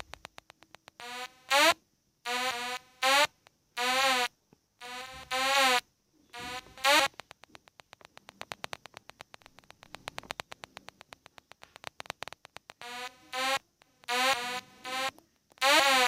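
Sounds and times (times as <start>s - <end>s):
synth clicks: 0.0s - 1.0s, 6.8s - 12.9s.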